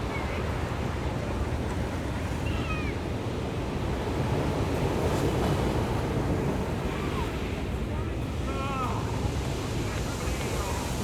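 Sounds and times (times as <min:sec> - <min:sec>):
ocean surf washing onto beach: 0:04.8 - 0:11.0.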